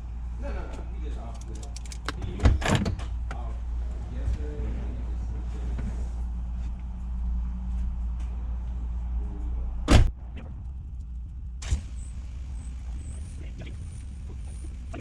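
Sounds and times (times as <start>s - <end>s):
car engine running: 9.8s - 15.0s
car door slamming: 9.9s - 10.1s.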